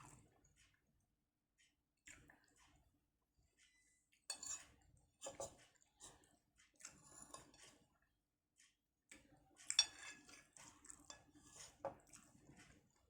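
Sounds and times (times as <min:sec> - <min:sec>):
cutlery clinking on a plate: 0:04.3 - 0:05.6, 0:09.7 - 0:10.4.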